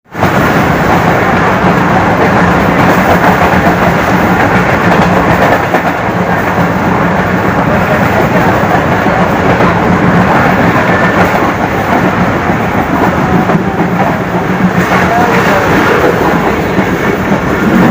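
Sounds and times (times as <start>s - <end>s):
train passing at speed: 0.1s - 17.9s.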